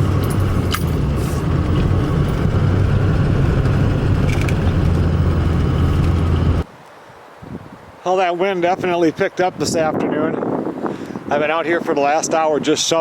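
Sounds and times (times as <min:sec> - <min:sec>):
vehicle engine and road rumble: 0:00.0 - 0:07.8.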